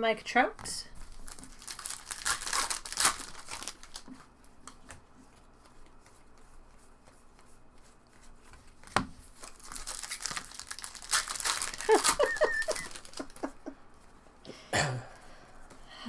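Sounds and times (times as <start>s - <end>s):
card wrappers crinkling: 1.0s - 4.9s, 8.7s - 13.7s
cards being handled: 1.0s - 13.7s.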